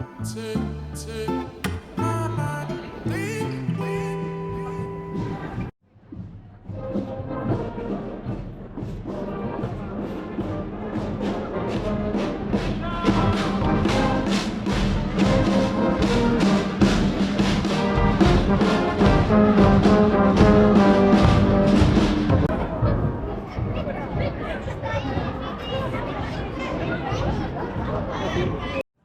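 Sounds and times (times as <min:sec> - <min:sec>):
steady drum beat: 0:08.4 - 0:22.6
brass instruments playing chords: 0:10.9 - 0:22.5.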